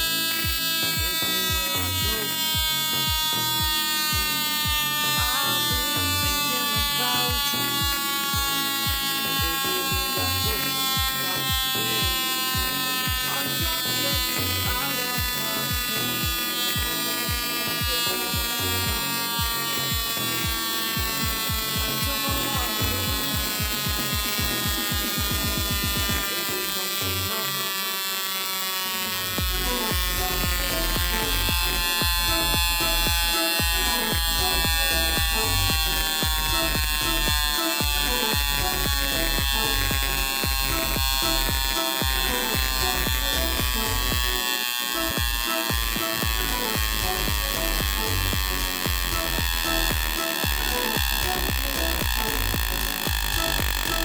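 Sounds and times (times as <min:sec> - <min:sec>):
music with kick-drum beat: 0:00.0 - 0:26.4, 0:29.4 - 0:54.0
electric buzz: 0:00.0 - 0:54.0.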